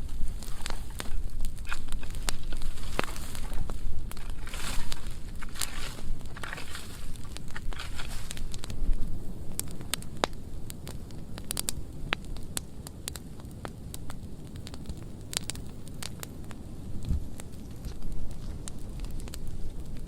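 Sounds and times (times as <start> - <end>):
flames rumbling: 0.0 - 20.0
wood popping and crackling: 0.0 - 20.0.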